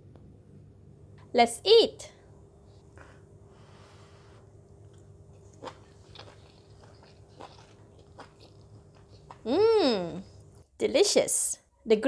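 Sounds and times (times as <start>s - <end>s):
low steady hum: 0.0s - 12.0s
person chewing crunchy beans: 4.4s - 10.7s.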